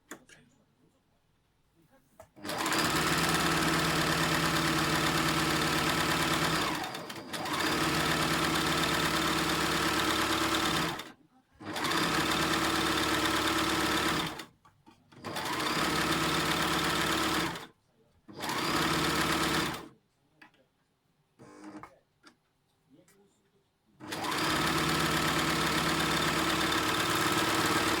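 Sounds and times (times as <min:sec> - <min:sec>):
serger sewing machine running: 0:02.4 - 0:14.4, 0:15.2 - 0:17.7, 0:18.4 - 0:19.9, 0:24.0 - 0:28.0.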